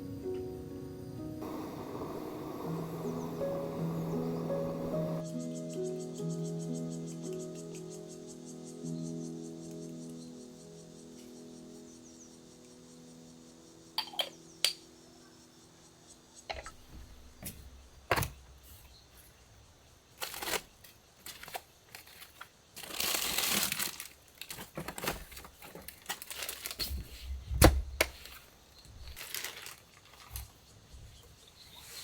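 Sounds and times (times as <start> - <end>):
crinkly packaging rustling: 20.1 - 27.4, 28.0 - 30.8.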